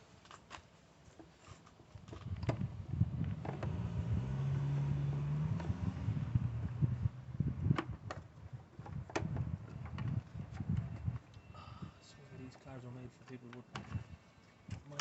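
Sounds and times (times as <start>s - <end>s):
low rumble: 2.3s - 7.8s.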